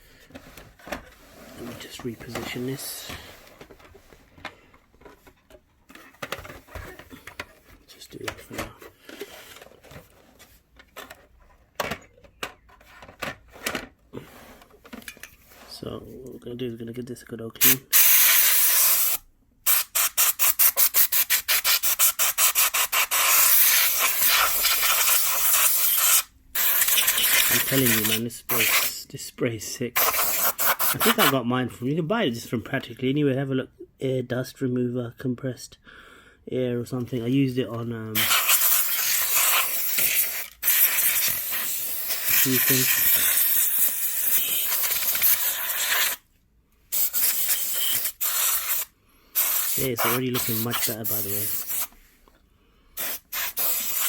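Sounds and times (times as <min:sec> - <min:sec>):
compressed air duster spraying: 0:17.6 - 0:28.9, 0:30.0 - 0:31.3, 0:38.2 - 0:46.2, 0:46.9 - 0:51.9, 0:53.0 - 0:54.0.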